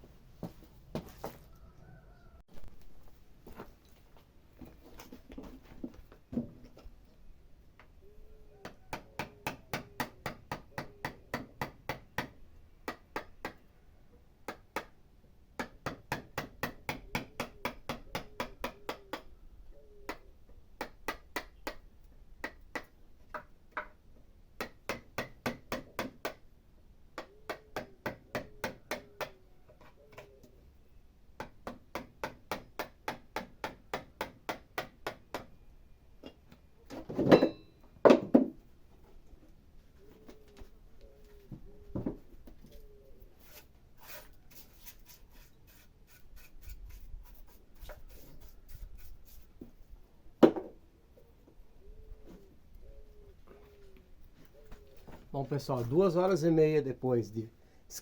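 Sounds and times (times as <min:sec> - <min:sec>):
hammer striking wood chisel: 0:24.6 - 0:26.4, 0:27.2 - 0:29.4, 0:31.4 - 0:35.5.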